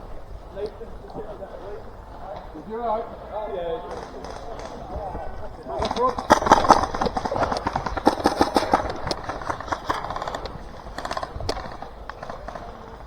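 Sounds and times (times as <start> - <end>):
airsoft guns firing bursts: 3.8 - 13.0.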